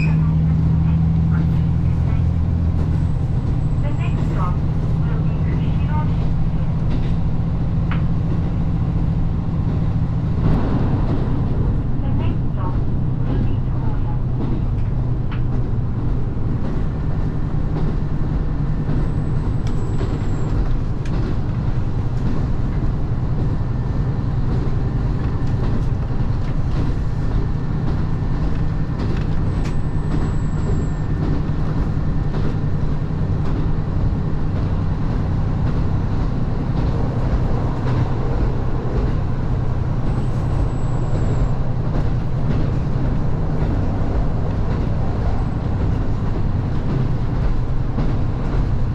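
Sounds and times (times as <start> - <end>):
diesel railcar engine hum: 0.0 - 48.9
train rumbling in motion: 0.0 - 48.9.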